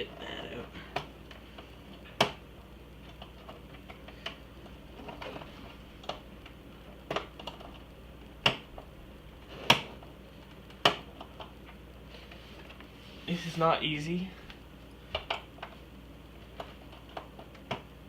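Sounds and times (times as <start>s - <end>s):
sharp plastic clicks and knocks: 8.4s - 8.9s, 10.6s - 11.8s.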